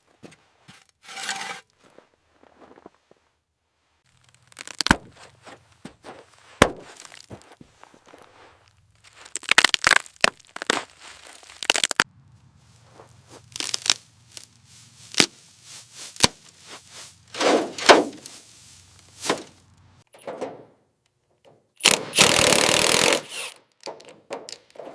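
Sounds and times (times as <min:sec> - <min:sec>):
scraping or tearing noise: 0:00.8 - 0:01.7, 0:04.0 - 0:19.8, 0:21.8 - 0:23.6
sharp knocks and cracks: 0:04.2 - 0:05.6, 0:06.6 - 0:07.5, 0:16.1 - 0:18.4, 0:19.0 - 0:23.2.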